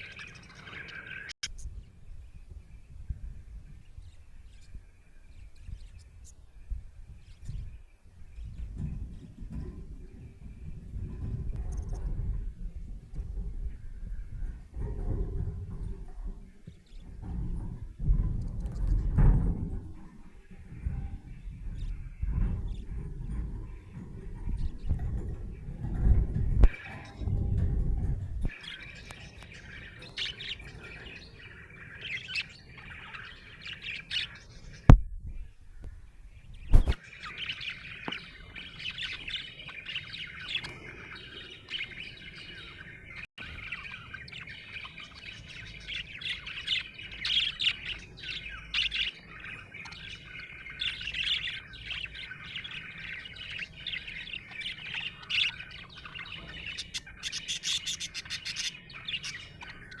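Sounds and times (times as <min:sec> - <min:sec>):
budgerigar chirping: 0:36.8 - 1:00.0.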